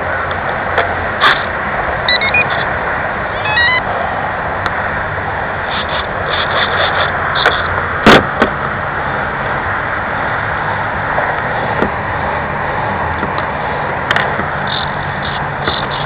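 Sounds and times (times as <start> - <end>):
short high-pitched buzzes: 2.1 - 2.7, 3.4 - 3.9.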